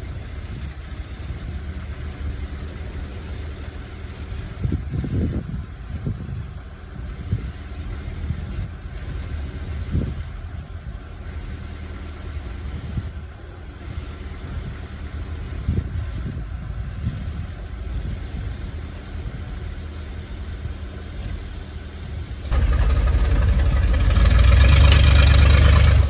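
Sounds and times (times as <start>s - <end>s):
heavy diesel engine running: 0.0s - 26.0s
loud bumps: 22.4s - 26.0s.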